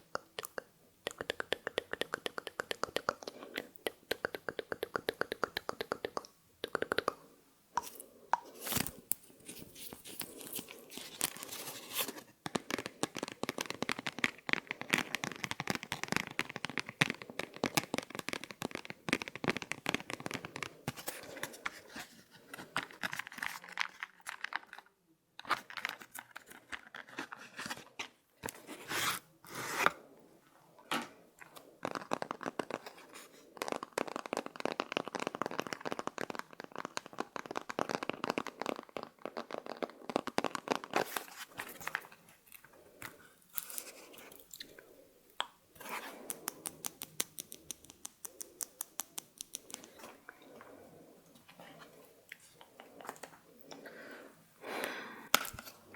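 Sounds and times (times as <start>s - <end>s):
rapid crisp clicks and crackles: 7.8s - 21.8s, 31.4s - 53.8s.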